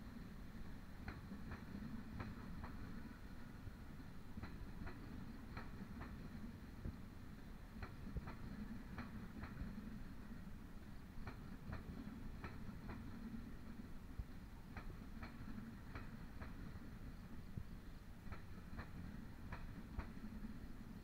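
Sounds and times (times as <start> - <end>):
low train rumble: 0.0 - 21.0
train wheels clacking over joints: 0.9 - 7.0, 7.7 - 10.4, 11.0 - 13.8, 14.6 - 17.3, 18.2 - 20.7.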